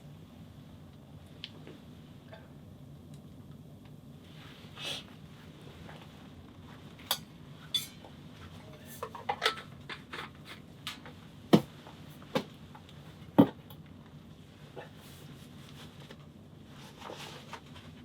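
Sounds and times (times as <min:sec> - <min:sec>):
objects knocking and clattering: 0:07.8 - 0:11.7.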